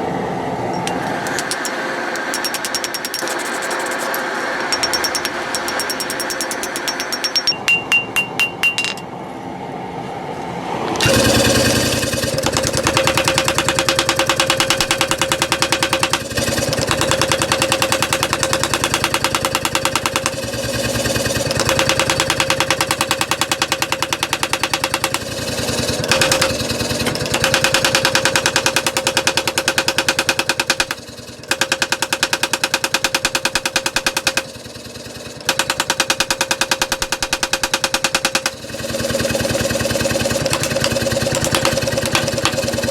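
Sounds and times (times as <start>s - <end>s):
power hammer pounding metal: 0.7s - 9.1s, 11.0s - 42.9s
ringing blows on metal: 4.6s - 9.1s.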